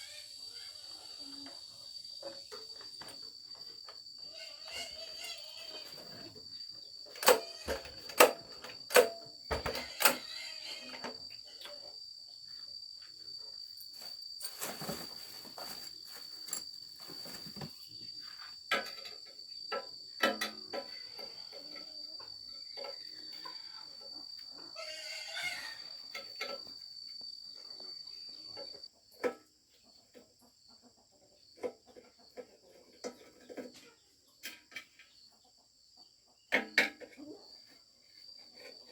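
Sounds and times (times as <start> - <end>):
high insect drone: 0.0 - 28.9.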